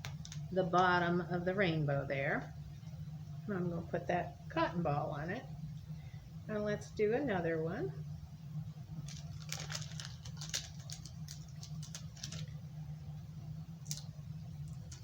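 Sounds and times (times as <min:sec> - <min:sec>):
paper crackles and clicks: 0:00.0 - 0:00.9, 0:09.0 - 0:12.6, 0:13.8 - 0:15.0
low electrical hum: 0:00.0 - 0:15.0.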